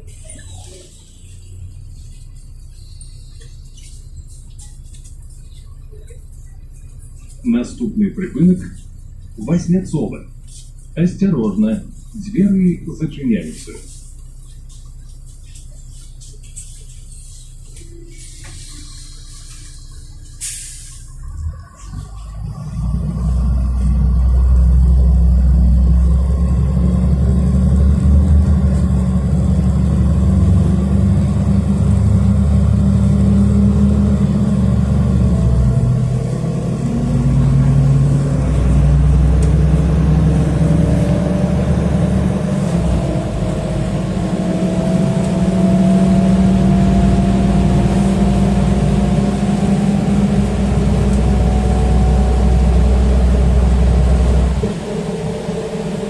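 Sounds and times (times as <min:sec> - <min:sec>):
bus engine rumble: 0:00.0 - 0:56.0
rising drivetrain whine: 0:21.2 - 0:56.0.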